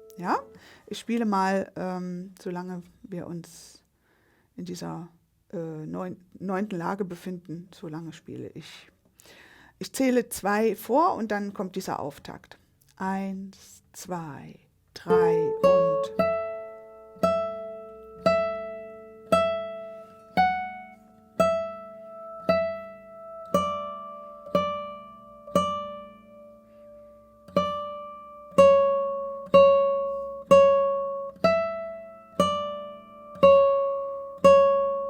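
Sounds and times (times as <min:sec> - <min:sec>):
guitar plucked melody: 0:00.0 - 0:00.6, 0:15.1 - 0:35.0.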